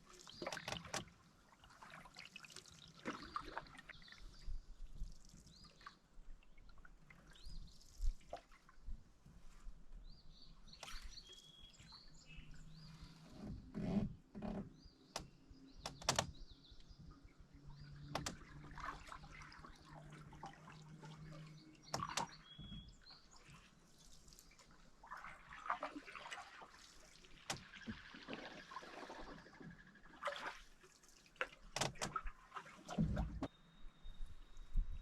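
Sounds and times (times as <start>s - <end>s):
paddle splashing and dripping: 0.0s - 13.6s, 16.8s - 33.5s
paddle knocking against canoe: 21.9s - 23.0s.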